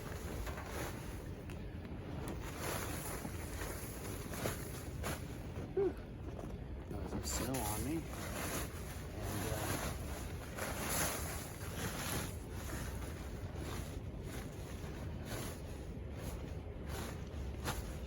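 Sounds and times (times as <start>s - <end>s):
wind rumbling on microphone: 0.0s - 18.0s
snow being swept off tarp: 2.4s - 5.4s, 7.2s - 18.0s.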